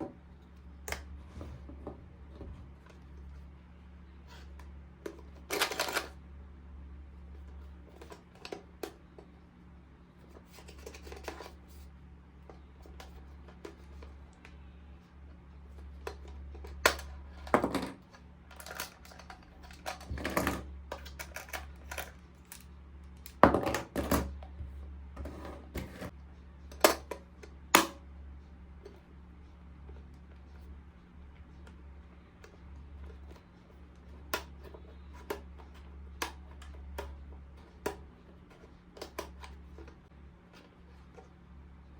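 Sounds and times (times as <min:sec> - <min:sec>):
steady low hum: 0:00.0 - 0:41.9
plastic parts clicking and tapping: 0:15.7 - 0:24.5, 0:31.6 - 0:41.3.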